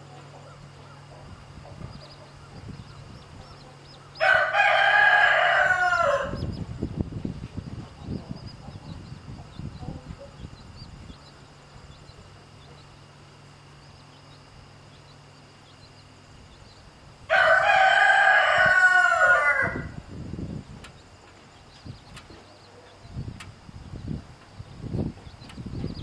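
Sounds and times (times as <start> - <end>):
chicks peeping: 0.1 - 26.0
rooster crowing: 3.5 - 6.6, 17.3 - 20.2.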